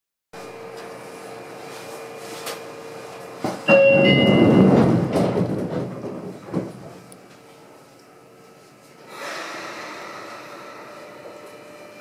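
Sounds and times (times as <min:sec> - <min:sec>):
train hum: 0:02.4 - 0:07.7
short held tone: 0:03.7 - 0:04.7.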